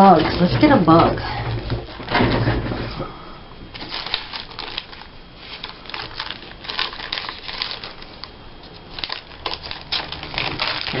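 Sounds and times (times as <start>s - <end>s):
paper rustling and crinkling: 3.7s - 11.0s.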